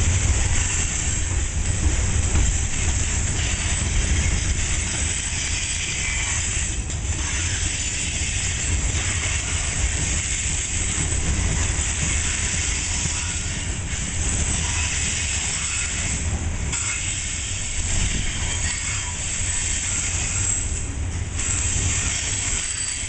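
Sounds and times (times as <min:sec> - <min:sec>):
steel wheels rumbling on rails: 0:00.0 - 0:23.0.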